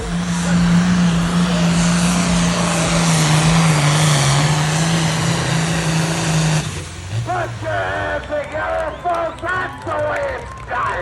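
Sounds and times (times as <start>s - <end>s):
engine running under heavy load: 0.0s - 11.0s.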